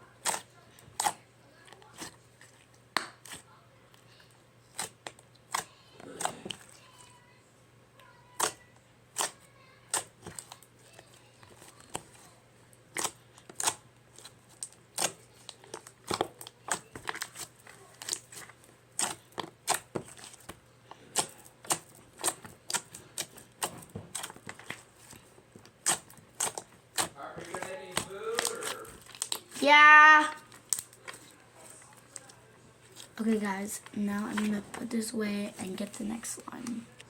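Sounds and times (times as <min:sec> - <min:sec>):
slime clicking and popping: 0:08.3 - 0:08.6, 0:12.9 - 0:13.8, 0:19.0 - 0:20.6, 0:25.7 - 0:29.6.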